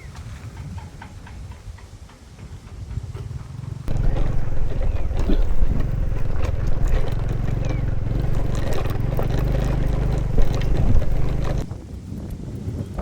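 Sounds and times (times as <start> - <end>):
motorcycle engine running: 3.3 - 11.8.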